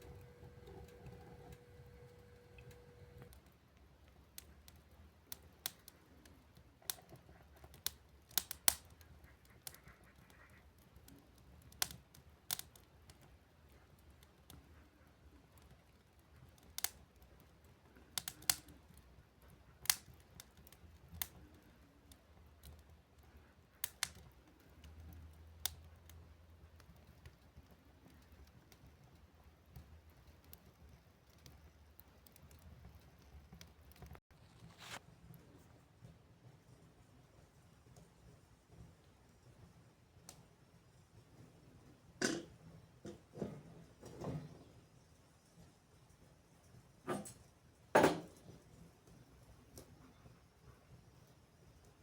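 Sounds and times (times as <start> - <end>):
faint low hum: 0.0 - 4.2
firewood crackling and popping: 0.0 - 38.2.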